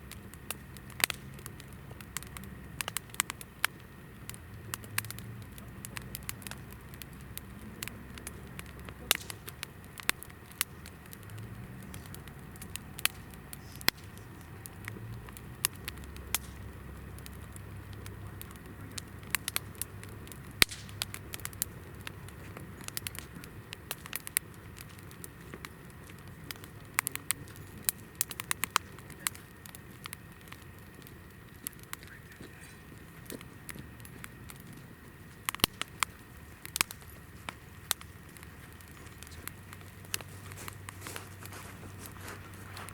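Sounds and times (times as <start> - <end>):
campfire crackling and popping: 0.0 - 42.9.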